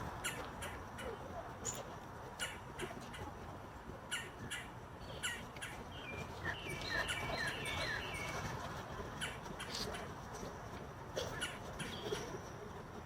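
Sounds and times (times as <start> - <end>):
small birds chirping: 4.0 - 10.4.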